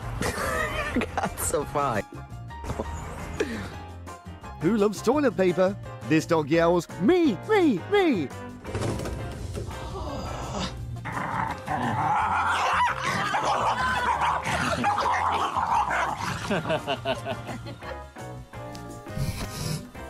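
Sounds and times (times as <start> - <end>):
background music: 0.0 - 20.0
dog yelling excitedly: 11.7 - 16.3.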